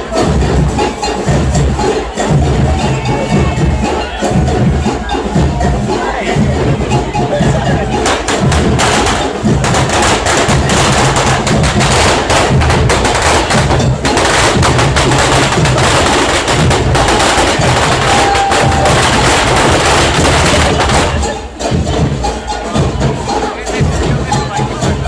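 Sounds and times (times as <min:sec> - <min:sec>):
marching drums beat: 0:00.0 - 0:25.0
firecracker bangs crackling: 0:08.0 - 0:21.4.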